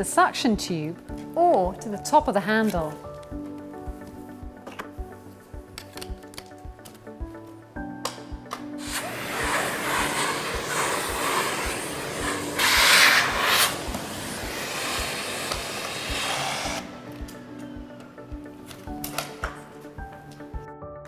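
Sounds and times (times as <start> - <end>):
vacuum cleaner running: 8.8 - 20.3.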